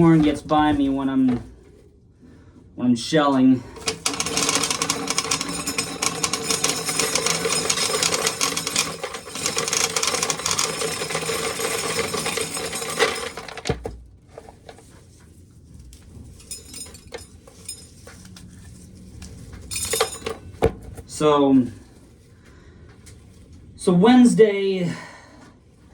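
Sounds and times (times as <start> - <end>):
corn sheller rattling: 3.8 - 14.9, 16.4 - 17.8, 19.7 - 20.4.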